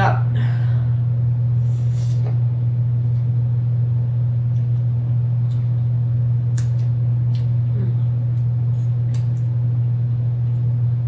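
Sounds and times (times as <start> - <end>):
loud low hum: 0.0 - 11.0.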